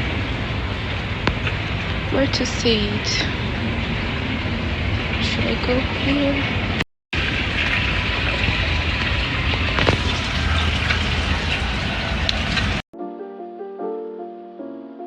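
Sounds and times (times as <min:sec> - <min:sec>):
rush of splashing water: 0:00.0 - 0:12.8
soft piano music: 0:13.0 - 0:15.0.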